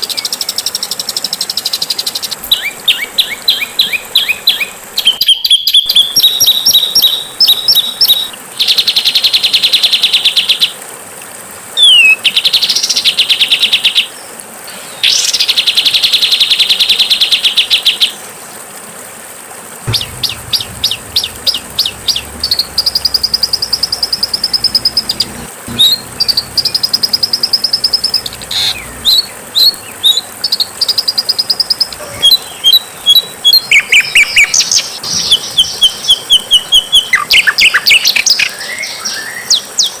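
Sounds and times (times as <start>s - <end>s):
buzzing bird trills: 19.9s - 38.0s
bird chirps: 19.9s - 38.5s.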